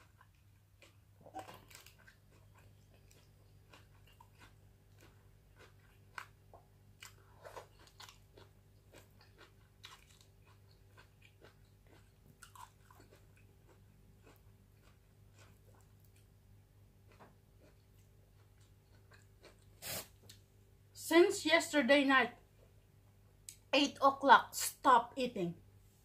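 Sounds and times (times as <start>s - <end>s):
wet chewing: 0.0s - 16.3s.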